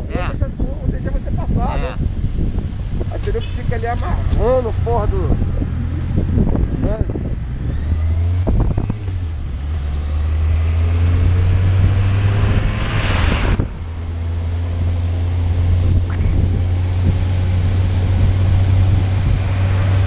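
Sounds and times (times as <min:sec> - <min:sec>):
wind noise on microphone: 0:00.0 - 0:20.0
rush of noise: 0:00.9 - 0:20.0
motorcycle engine running: 0:13.6 - 0:20.0.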